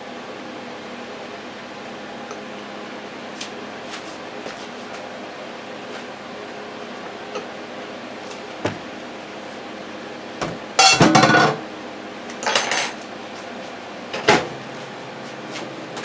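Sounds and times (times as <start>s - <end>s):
steady background hum: 0.0s - 16.0s
dishes clattering: 10.8s - 11.6s, 12.4s - 13.0s.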